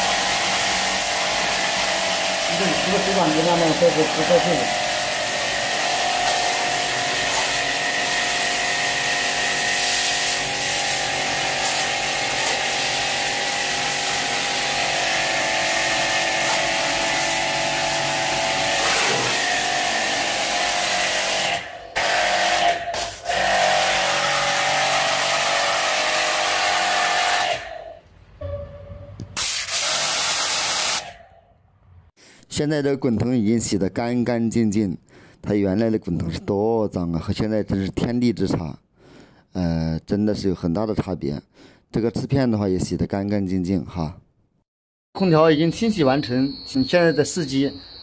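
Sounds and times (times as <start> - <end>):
water jet spraying: 0.0 - 21.6
pressure-washer pump running: 0.0 - 27.4, 29.4 - 31.0.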